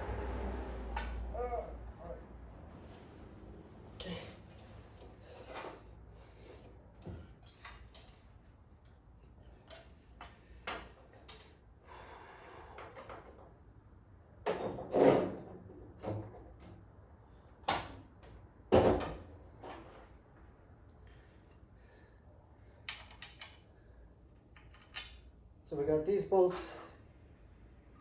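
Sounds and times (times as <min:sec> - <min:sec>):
tools and metal parts clattering: 0:07.2 - 0:11.6, 0:22.8 - 0:23.6, 0:24.5 - 0:25.2.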